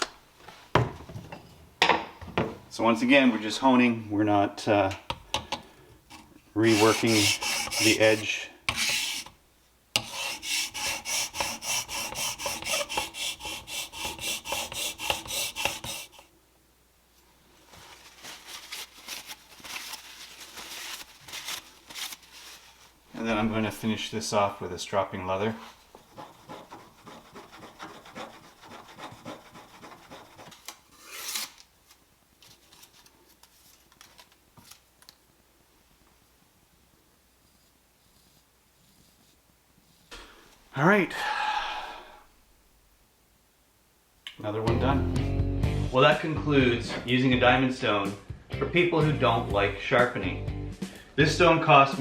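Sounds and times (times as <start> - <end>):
blade rubbing on leather strop: 6.1 - 9.3, 10.0 - 16.2
plane iron rasping on sharpening stone: 6.1 - 9.4, 10.0 - 16.2, 26.1 - 30.5.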